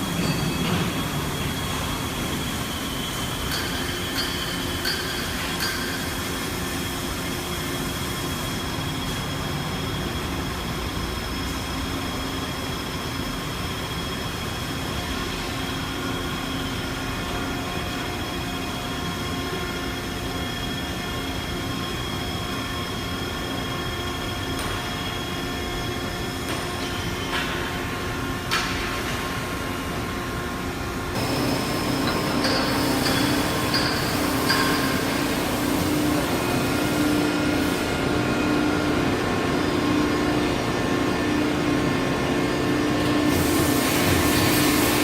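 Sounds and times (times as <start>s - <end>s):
machinery high-pitched whine: 0.0s - 45.0s
low machinery hum: 27.2s - 45.0s.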